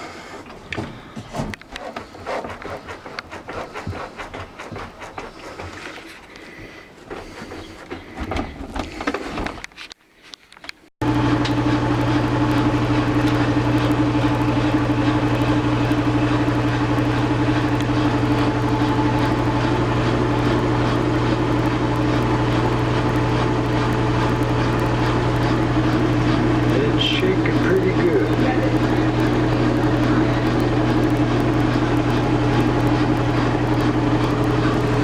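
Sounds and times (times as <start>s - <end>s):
washing machine spinning: 11.0s - 35.0s.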